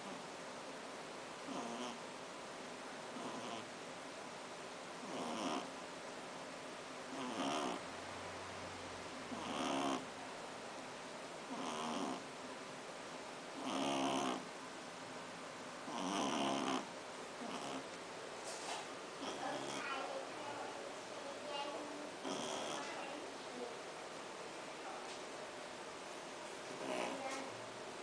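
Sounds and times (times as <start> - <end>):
puppy snoring: 1.4 - 2.0, 3.1 - 3.7, 5.0 - 5.7, 7.1 - 7.8, 9.3 - 10.1, 11.5 - 12.3, 13.6 - 14.5, 15.8 - 17.9, 19.2 - 20.2, 22.2 - 23.1, 26.7 - 27.5.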